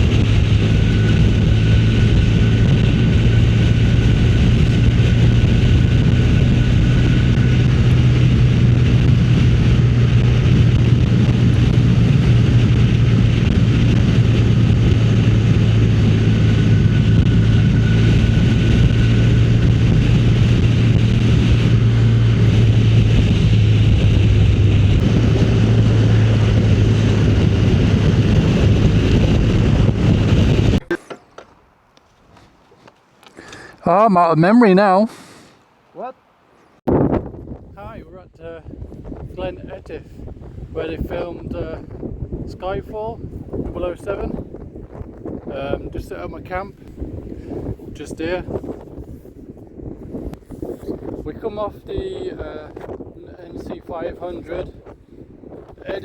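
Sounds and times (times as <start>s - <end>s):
motorcycle engine running: 0.0s - 30.9s
wind rush over microphone: 0.0s - 31.0s, 36.8s - 56.0s.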